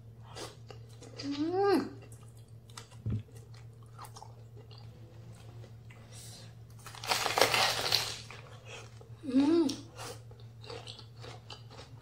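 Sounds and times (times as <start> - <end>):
crunchy bite: 6.8 - 8.4.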